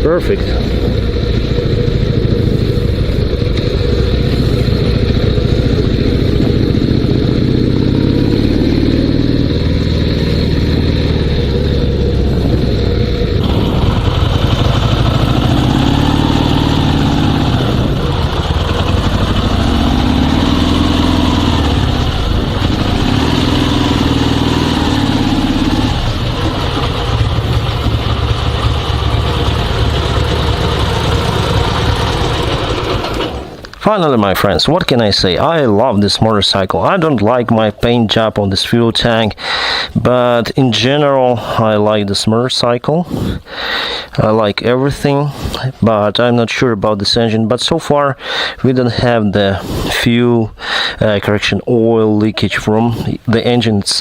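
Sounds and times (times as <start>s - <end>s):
motorcycle engine running: 0.0s - 33.8s.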